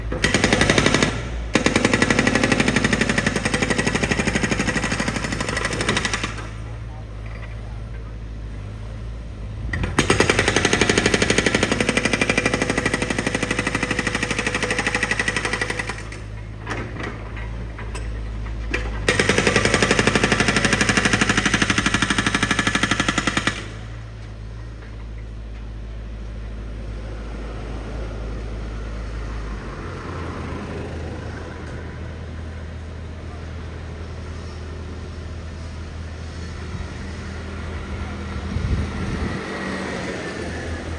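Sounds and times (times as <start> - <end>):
breaker drill hammering: 0.0 - 6.8, 9.7 - 18.1, 18.7 - 24.1
low engine hum: 6.2 - 11.2, 23.7 - 40.9.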